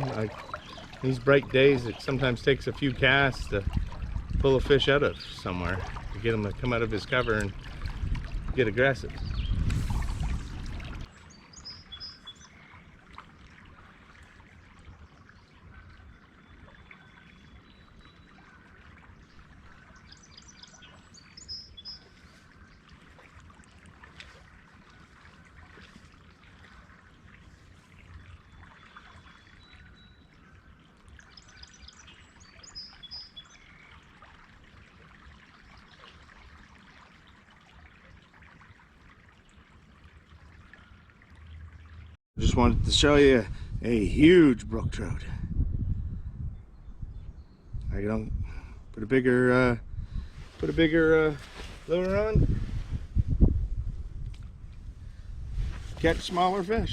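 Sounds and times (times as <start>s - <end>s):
songbird singing: 0.0s - 10.0s, 10.6s - 13.0s, 15.0s - 23.3s, 26.6s - 34.2s, 44.2s - 52.5s
river water trickling: 0.0s - 44.8s, 45.8s - 56.9s
thin whistled bird call: 11.2s - 12.8s, 28.3s - 34.1s.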